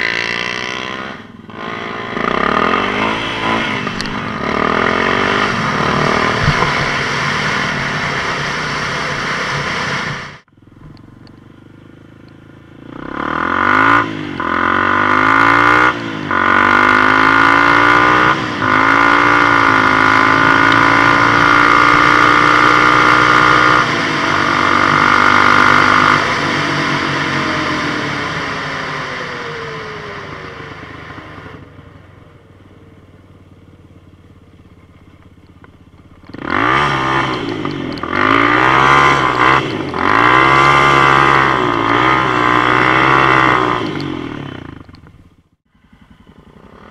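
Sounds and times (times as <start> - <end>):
quad engine accelerating: 0.0 - 46.9.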